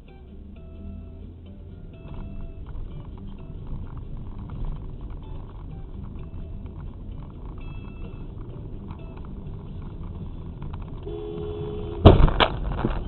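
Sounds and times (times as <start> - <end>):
car road and engine noise: 0.0 - 13.0
two-note car horn: 11.0 - 12.3
loud collision impact: 11.8 - 13.0.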